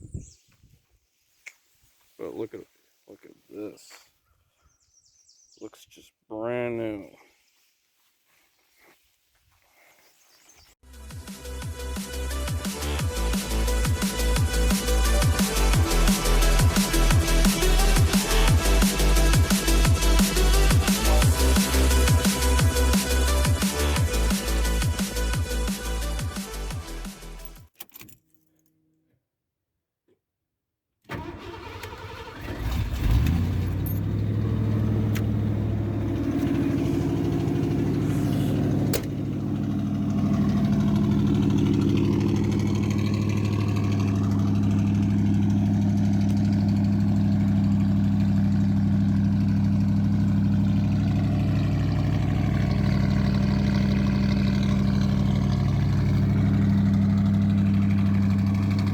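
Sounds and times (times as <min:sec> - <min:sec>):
engine idling: 0:11.7 - 0:26.7, 0:31.2 - 0:58.9
pickup engine cranking and starting: 0:31.1 - 0:58.9.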